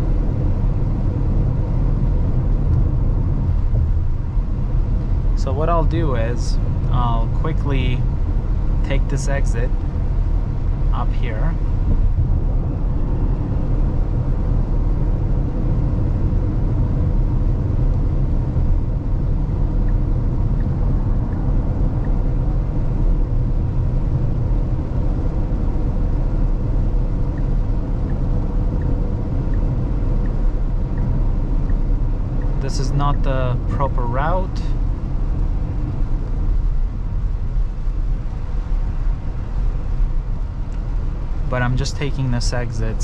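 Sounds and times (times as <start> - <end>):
road and tyre rumble: 0.0 - 43.0
turn signal ticking: 16.8 - 33.3.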